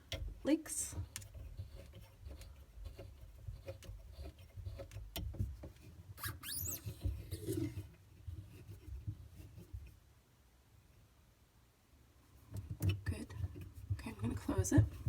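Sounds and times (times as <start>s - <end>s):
high squeak: 6.2s - 7.6s.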